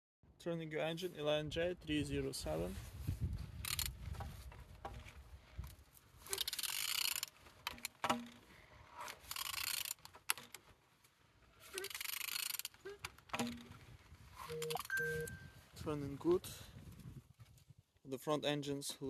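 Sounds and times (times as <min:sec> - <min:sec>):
engine crankshaft turning by hand: 0:03.6 - 0:04.0, 0:06.2 - 0:10.6, 0:11.6 - 0:13.8
short mechanical clicks: 0:06.3 - 0:08.3, 0:09.1 - 0:10.6, 0:11.7 - 0:12.8.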